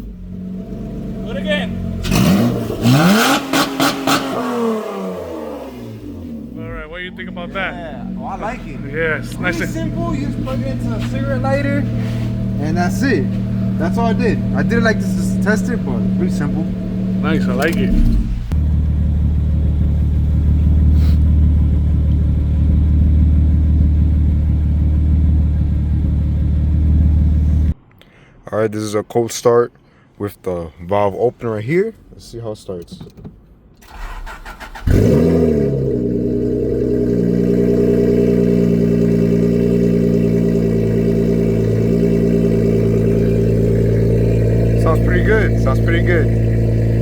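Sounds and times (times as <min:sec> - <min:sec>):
car engine idling: 0:00.0 - 0:27.8, 0:33.0 - 0:47.0.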